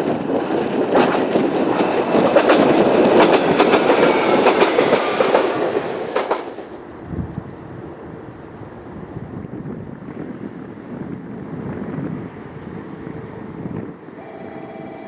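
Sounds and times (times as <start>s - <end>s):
train wheels clattering over rail joints: 0.0s - 8.0s
faint steady high tone: 14.1s - 15.0s.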